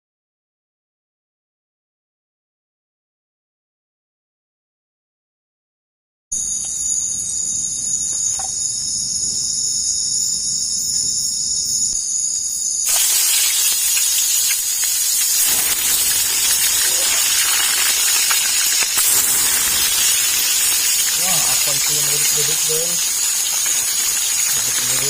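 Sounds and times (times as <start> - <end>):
insects droning: 6.3 - 25.0
loud even hiss: 12.8 - 25.0.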